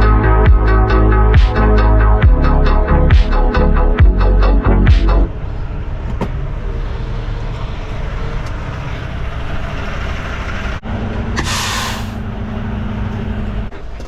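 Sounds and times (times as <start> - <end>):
truck diesel engine rumbling: 0.0 - 14.0
air brake hiss: 11.4 - 12.2.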